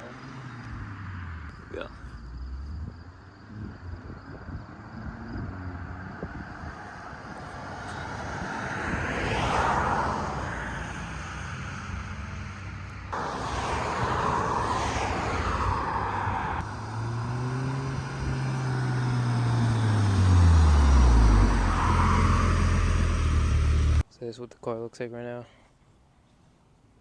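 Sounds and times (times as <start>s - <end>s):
car driving past: 2.2s - 24.0s.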